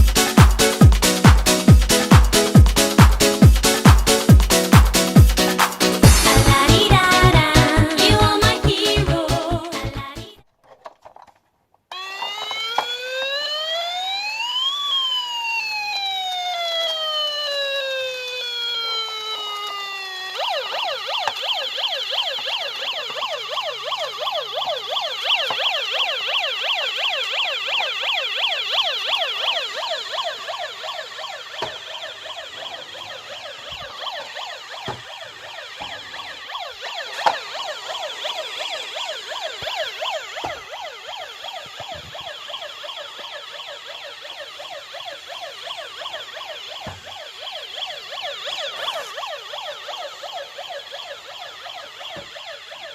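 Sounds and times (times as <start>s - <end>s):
toy police siren warbling: 0.0s - 10.2s, 11.9s - 52.9s.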